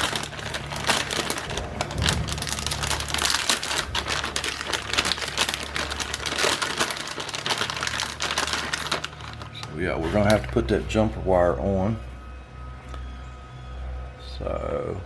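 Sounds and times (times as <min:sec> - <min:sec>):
rustling and crackling handling: 0:00.0 - 0:11.0
low hum: 0:00.0 - 0:15.0.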